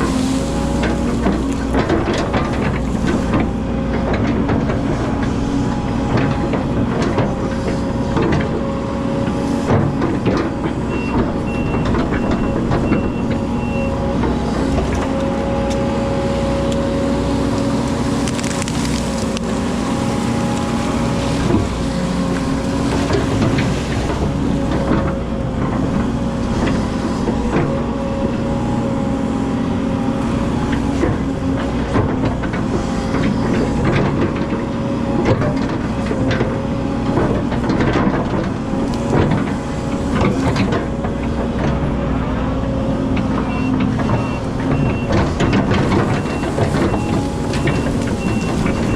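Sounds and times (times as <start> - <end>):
diesel engine running under load: 0.0 - 48.9.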